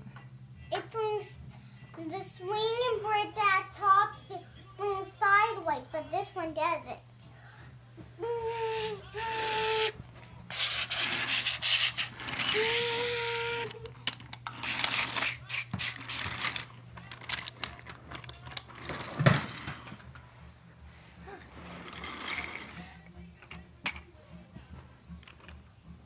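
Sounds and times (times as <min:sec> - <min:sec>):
toy drawbridge clicking and rubbing: 0:10.5 - 0:20.0, 0:21.5 - 0:24.6, 0:25.2 - 0:25.6.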